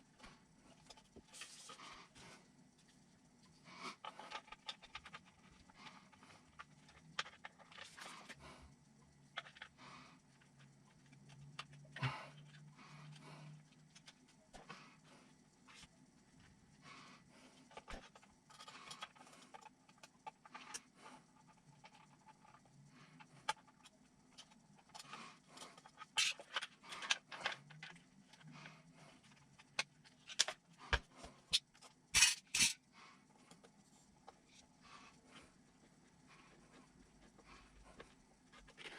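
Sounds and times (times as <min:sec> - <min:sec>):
small parts clicking and tapping: 0:04.0 - 0:08.4, 0:09.0 - 0:14.7, 0:17.6 - 0:34.7.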